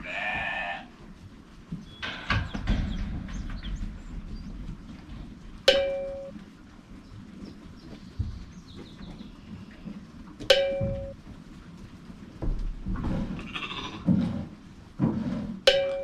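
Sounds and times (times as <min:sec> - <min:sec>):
sheep bleating: 0:00.0 - 0:00.9, 0:13.4 - 0:14.1
sharp metallic clang: 0:05.7 - 0:06.4, 0:15.7 - 0:16.0.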